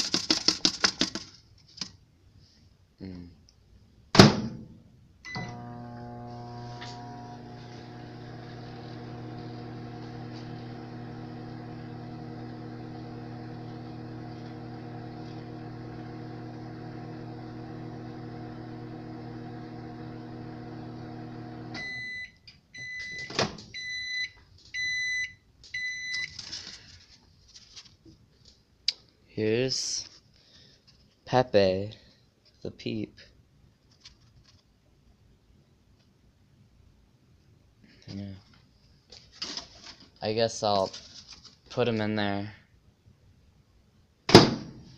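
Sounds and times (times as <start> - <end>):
microwave oven beeps: 5.3 - 11.4, 21.5 - 26.3
microwave oven humming: 5.3 - 22.2.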